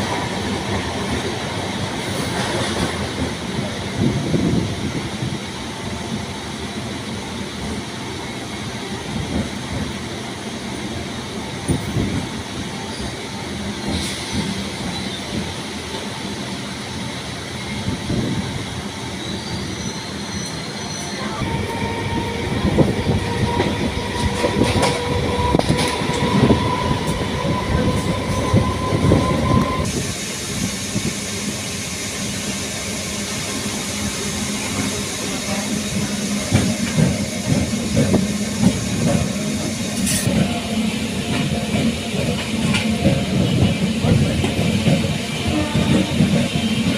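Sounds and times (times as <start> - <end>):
electric train rumbling: 0.0 - 46.9
high squeal or whine: 19.2 - 29.9.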